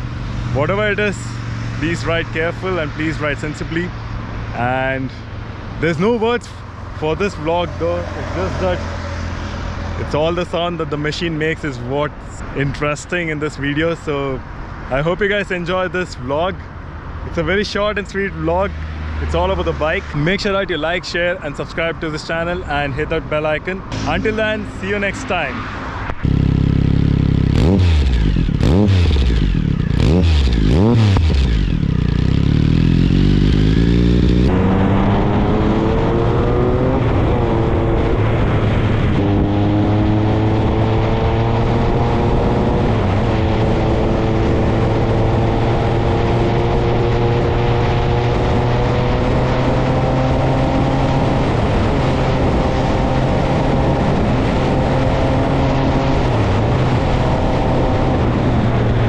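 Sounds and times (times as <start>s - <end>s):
motorcycle engine revving: 6.0s - 10.4s, 23.8s - 59.0s.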